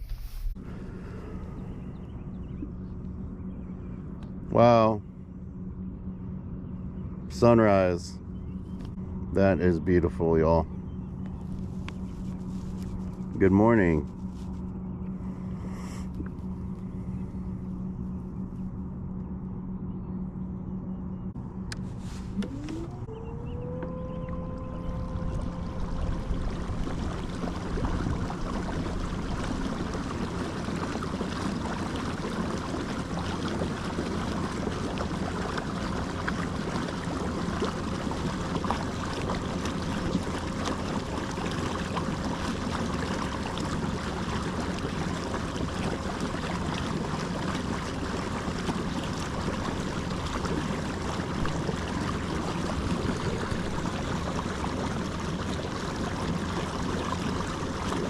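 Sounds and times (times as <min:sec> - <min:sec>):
wind: 0:00.0 - 0:58.0
water rushing around boat: 0:04.5 - 0:05.0, 0:07.3 - 0:08.1, 0:11.3 - 0:14.6, 0:21.8 - 0:58.0.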